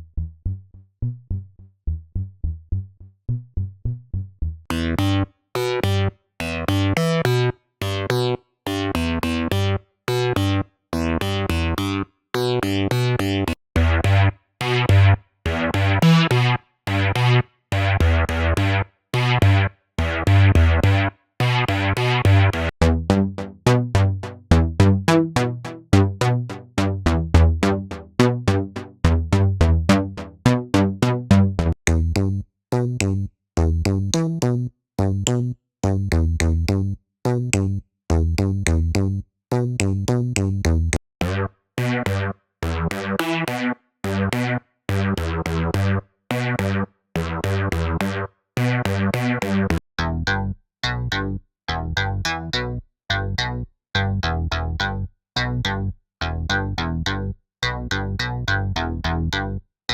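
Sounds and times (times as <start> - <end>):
staccato synthesizer riffs: 13.8 - 34.4, 41.2 - 49.8
strong synth bass: 13.8 - 50.5.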